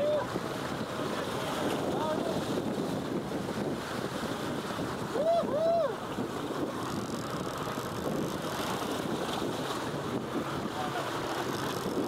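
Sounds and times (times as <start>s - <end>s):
water moving around boat: 0.0s - 12.0s
wind buffeting microphone: 0.0s - 12.0s.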